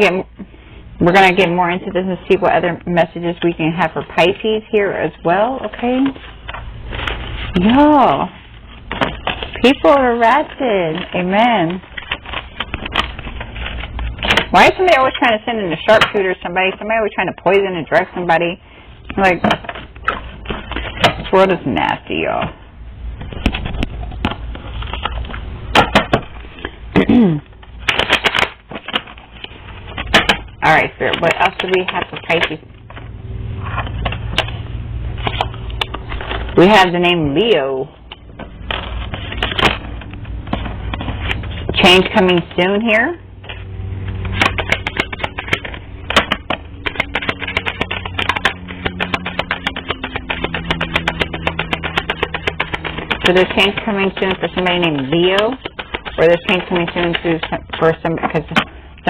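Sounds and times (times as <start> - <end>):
cards being shuffled: 5.6 - 16.9, 19.1 - 22.5, 23.2 - 37.4, 38.0 - 58.8
rapid light clicks and taps: 44.5 - 57.8.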